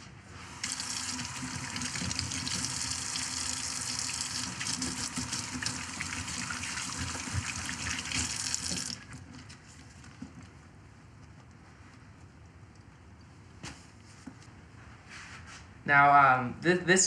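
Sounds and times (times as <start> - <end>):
sink tap running: 0.6 - 9.0.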